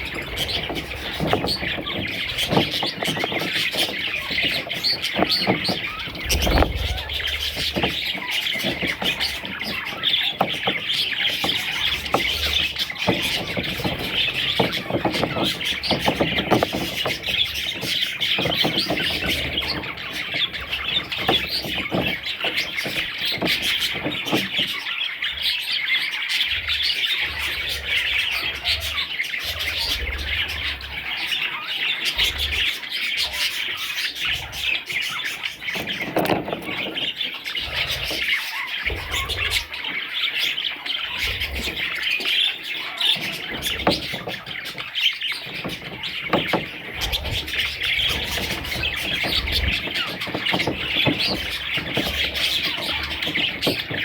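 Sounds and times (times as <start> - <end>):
budgerigars chirping: 0.0 - 54.0.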